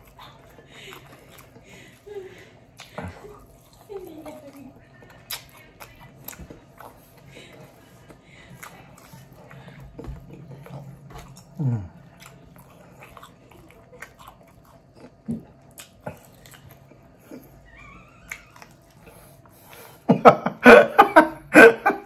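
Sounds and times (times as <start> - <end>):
man chewing and lip smacking: 0.0 - 20.1
man laughing loudly: 20.1 - 22.0.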